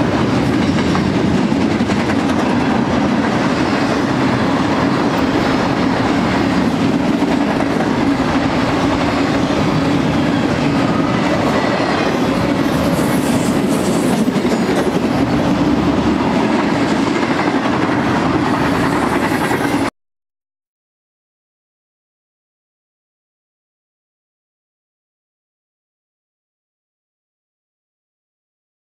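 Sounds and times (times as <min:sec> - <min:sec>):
freight train wheels rumbling on rail: 0:00.0 - 0:19.9.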